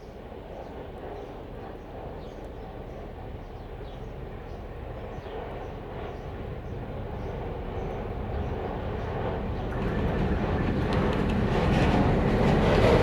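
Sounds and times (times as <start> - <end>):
diesel locomotive engine rumble: 8.0 - 13.0.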